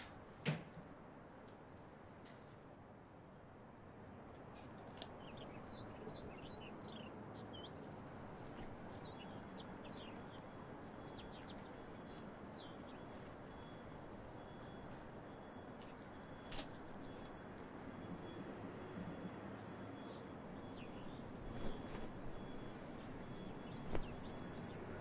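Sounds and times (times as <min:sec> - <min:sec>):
faint outdoor background noise: 0:00.0 - 0:25.0
small birds chirping: 0:04.8 - 0:17.4, 0:18.0 - 0:25.0.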